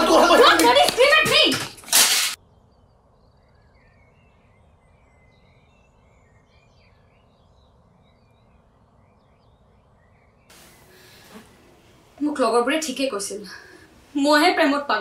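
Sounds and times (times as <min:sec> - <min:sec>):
bird chirps and twitters: 0:02.4 - 0:11.0
faint background hiss: 0:10.5 - 0:15.0.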